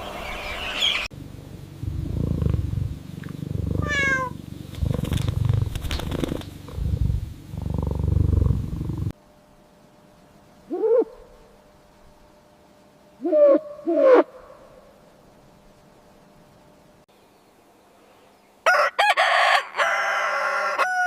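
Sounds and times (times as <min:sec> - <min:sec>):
cat purring: 0:01.3 - 0:09.1
owl hooting: 0:01.8 - 0:08.9, 0:10.7 - 0:11.6, 0:13.2 - 0:15.0
cat meowing: 0:03.8 - 0:04.4.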